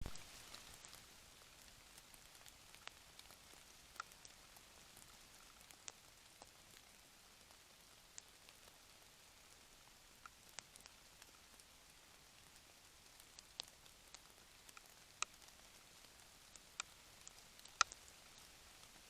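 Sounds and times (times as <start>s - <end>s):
faint background hiss: 0.0s - 19.0s
sharp ticks: 16.8s - 18.0s.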